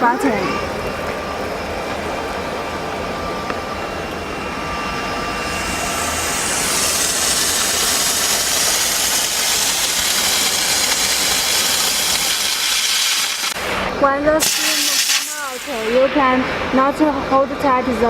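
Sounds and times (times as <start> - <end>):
car washer engine humming: 0.0 - 18.0
steam hissing from steam gun: 5.4 - 17.1.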